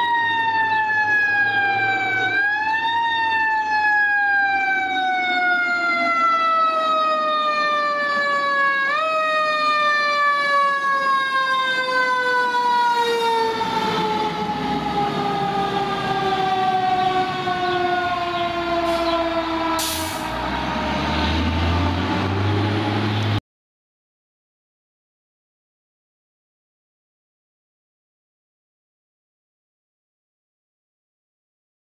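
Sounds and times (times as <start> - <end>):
fire engine siren: 0.0 - 23.4.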